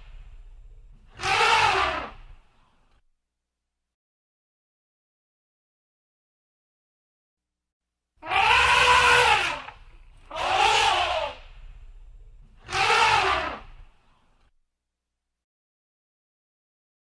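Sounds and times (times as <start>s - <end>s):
animal calling: 1.1s - 2.4s, 8.2s - 11.6s, 12.5s - 14.0s.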